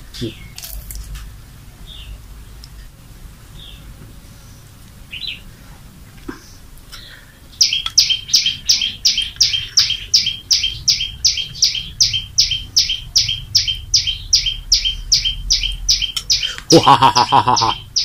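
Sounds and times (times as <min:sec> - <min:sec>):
bird chirping: 0:00.0 - 0:00.9, 0:01.8 - 0:02.6, 0:03.5 - 0:05.5, 0:06.3 - 0:18.0
fast high falling bird chirps: 0:06.5 - 0:18.0.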